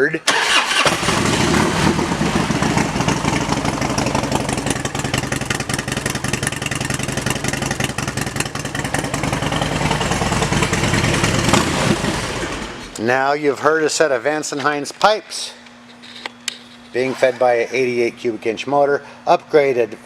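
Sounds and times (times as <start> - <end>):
motorcycle engine idling: 1.0 - 12.8.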